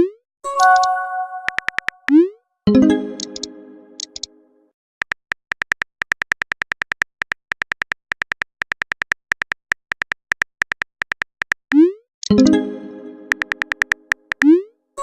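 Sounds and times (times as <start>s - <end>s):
bright message tone: 0.5s - 1.9s, 2.7s - 4.4s
phone keyboard typing clicks: 0.6s - 2.2s, 3.2s - 4.3s, 5.0s - 12.4s, 13.3s - 14.5s.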